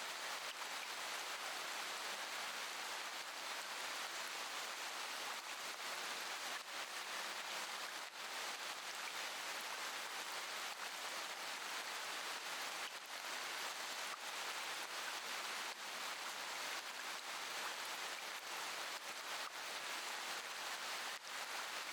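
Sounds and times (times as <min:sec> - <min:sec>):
steady rain: 0:00.0 - 0:21.9.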